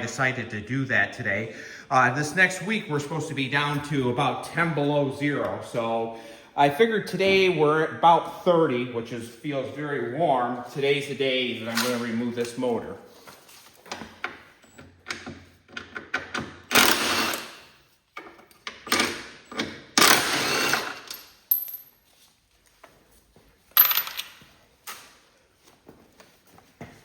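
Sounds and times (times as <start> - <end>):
hand tools clinking and scraping: 10.6 - 13.7.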